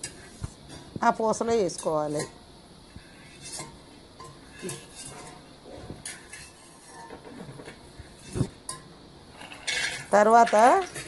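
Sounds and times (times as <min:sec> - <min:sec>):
metal ladle clinking and scraping: 0:03.0 - 0:07.4, 0:08.1 - 0:11.0.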